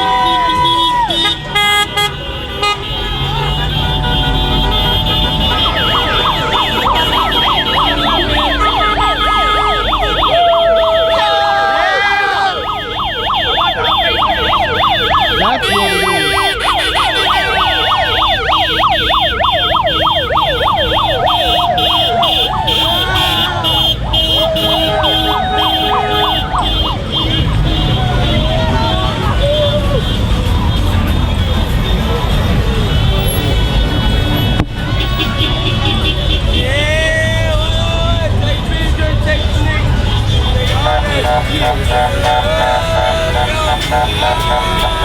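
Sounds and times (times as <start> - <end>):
voices shouting: 0.0 - 1.5, 2.8 - 30.5, 35.1 - 45.0
car horn blasts: 0.0 - 36.8, 38.5 - 45.0
sirens yelping: 3.0 - 30.5, 39.8 - 45.0.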